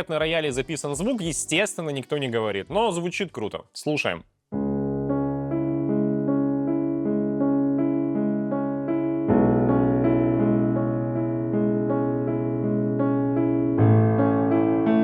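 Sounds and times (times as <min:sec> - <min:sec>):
piano bass chord: 0:04.6 - 0:15.0
piano broken chords: 0:04.6 - 0:15.0.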